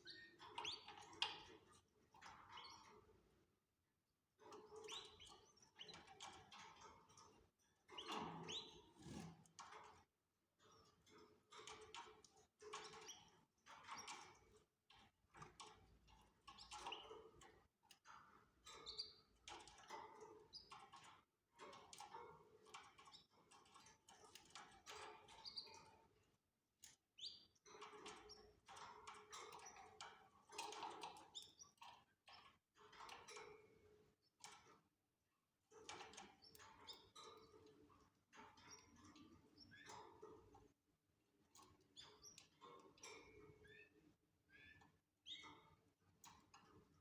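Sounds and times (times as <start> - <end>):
canaries chirping: 8.0 - 9.3.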